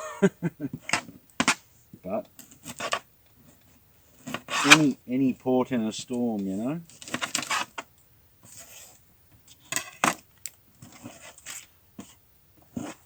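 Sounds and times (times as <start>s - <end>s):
knife cutting vegetables: 4.3s - 4.9s.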